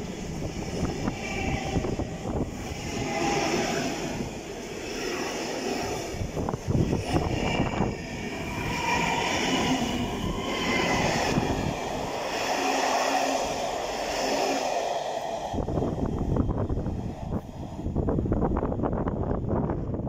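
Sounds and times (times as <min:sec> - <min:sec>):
electric train whine: 0:00.0 - 0:20.0
wind buffeting microphone: 0:00.0 - 0:20.0.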